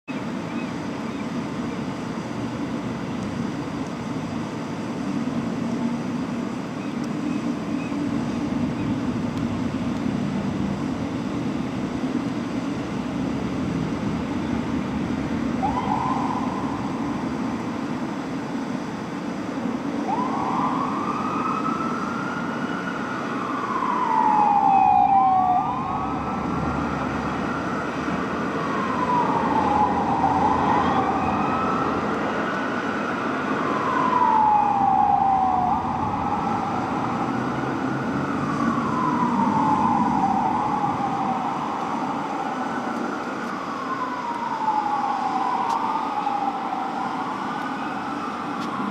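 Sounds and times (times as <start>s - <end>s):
traffic and engine rumble: 0.1s - 48.9s
siren wailing: 10.8s - 48.9s
second siren wailing: 13.8s - 48.9s
siren chirp: 14.3s - 18.9s, 19.7s - 48.9s.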